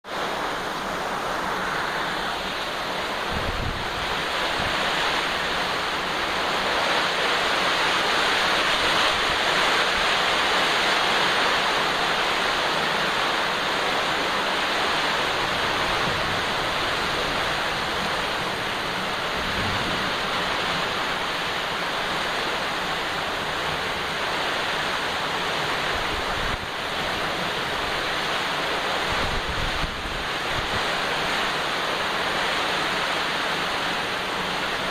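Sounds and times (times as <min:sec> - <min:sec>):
heavy rain falling: 0:00.0 - 0:34.9
wind bumps on microphone: 0:03.2 - 0:05.6, 0:15.4 - 0:21.5, 0:29.1 - 0:30.9.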